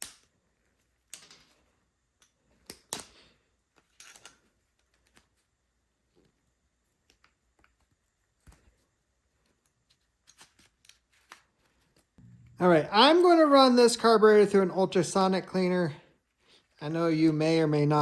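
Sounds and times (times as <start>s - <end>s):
small parts and tools clicking: 0.0s - 5.5s, 9.4s - 12.3s.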